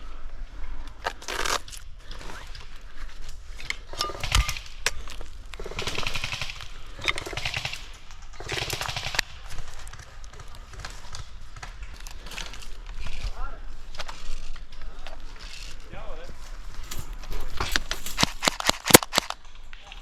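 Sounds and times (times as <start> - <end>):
airsoft guns firing full-auto: 4.0 - 4.8, 5.6 - 11.7, 18.2 - 19.3
sharp clicks and knocks: 16.8 - 19.4.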